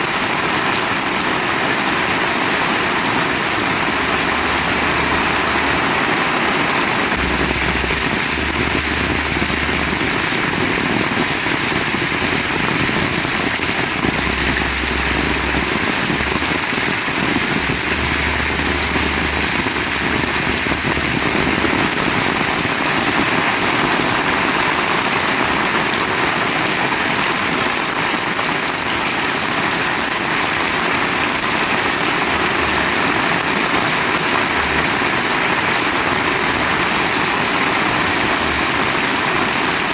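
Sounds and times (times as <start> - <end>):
heavy rain pouring: 0.0 - 39.9
low rumble: 3.7 - 22.6.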